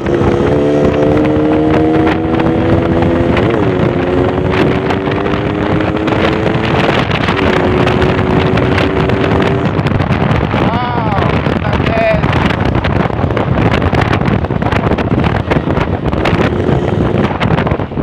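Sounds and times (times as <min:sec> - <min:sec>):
motorcycle engine accelerating: 0:00.0 - 0:18.0
wind on microphone: 0:00.0 - 0:18.0.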